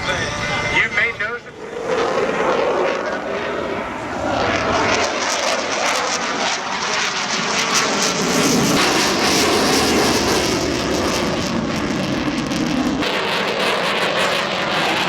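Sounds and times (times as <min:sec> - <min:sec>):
airplane flying past: 0:00.0 - 0:15.0.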